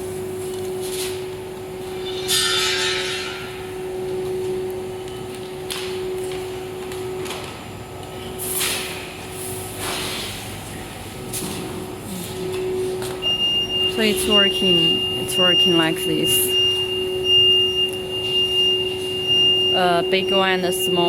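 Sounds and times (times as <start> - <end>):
filling machine humming: 9.0 - 21.0.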